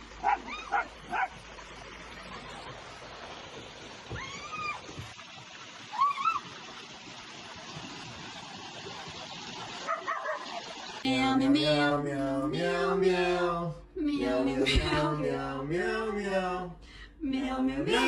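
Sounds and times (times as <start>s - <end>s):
dog yipping: 0.2s - 1.3s, 9.8s - 10.5s.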